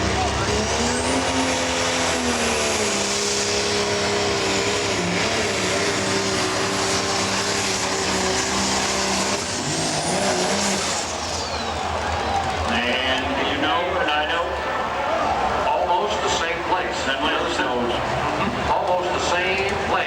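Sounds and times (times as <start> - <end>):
high turbo whine: 0.0 - 14.6
diesel engine running under load: 0.0 - 20.0.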